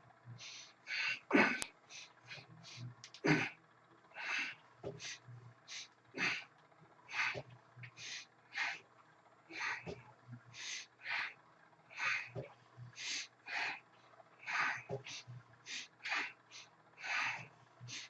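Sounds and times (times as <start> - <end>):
man exhaling forcefully and gasping: 0.4 - 3.5, 4.2 - 6.4, 7.1 - 7.4, 9.5 - 10.0, 12.0 - 12.4, 14.5 - 16.3, 17.0 - 18.0.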